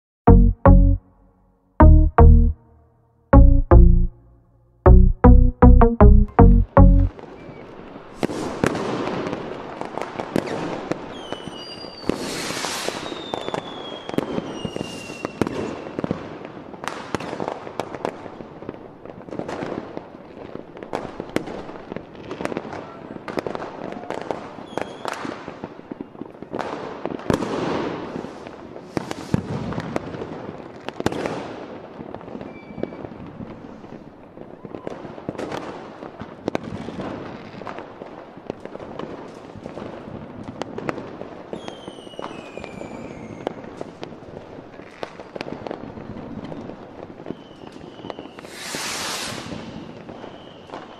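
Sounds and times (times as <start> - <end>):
fireworks bursting with crackle: 7.3 - 50.9
falling firework whistles: 10.3 - 16.2, 24.6 - 25.4, 28.1 - 30.0, 32.4 - 33.4, 41.5 - 43.8, 46.5 - 50.9.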